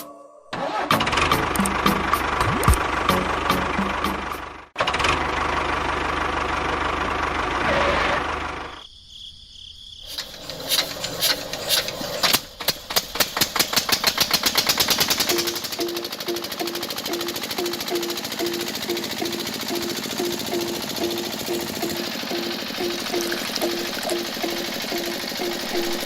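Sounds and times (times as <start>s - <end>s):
small engine running: 0.6s - 8.8s, 10.1s - 26.0s.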